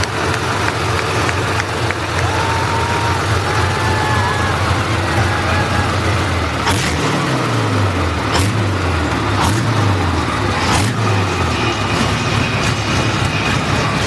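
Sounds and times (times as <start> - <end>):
motorcycle engine drone: 0.0 - 14.0.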